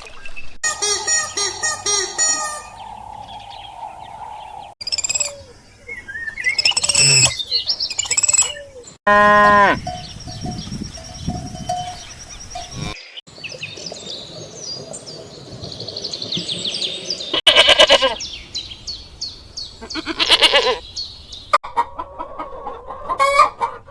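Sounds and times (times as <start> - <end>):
birds chirping: 0.1 - 21.6
low farm animal call: 6.8 - 7.4, 17.4 - 18.2, 19.8 - 20.8.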